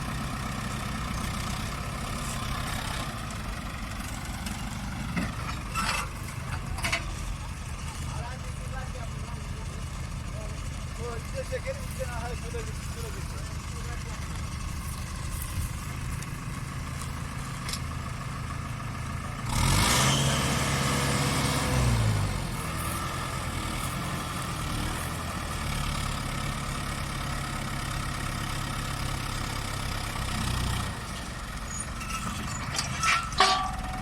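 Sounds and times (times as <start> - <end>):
tractor diesel engine idling: 0.0 - 19.5, 20.4 - 34.0
engine revving: 19.4 - 26.2.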